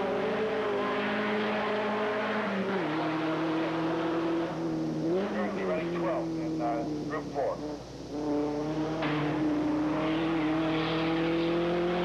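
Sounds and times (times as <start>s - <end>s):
racing car engine at high revs: 0.0s - 12.0s.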